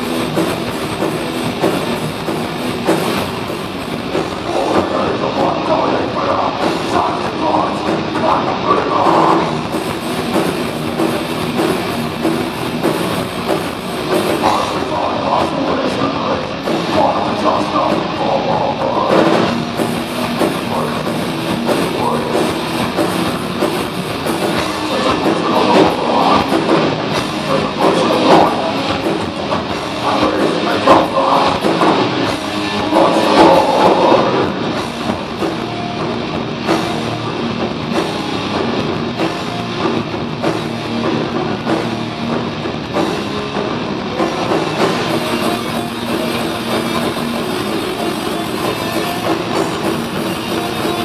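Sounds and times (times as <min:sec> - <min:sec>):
heavy metal band playing: 0:00.0 - 0:51.0.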